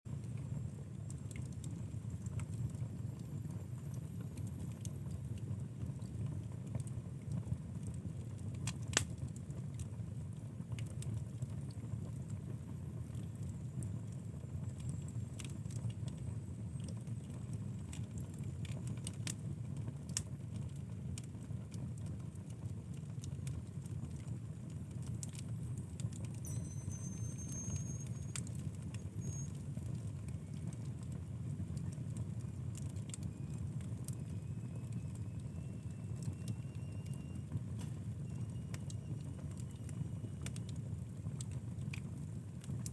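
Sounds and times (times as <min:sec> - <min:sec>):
fire crackles and pops: 0:00.1 - 0:42.9
low rumble of flames: 0:00.1 - 0:42.9
faint high whistle: 0:26.4 - 0:29.6, 0:34.2 - 0:37.6, 0:38.2 - 0:40.4.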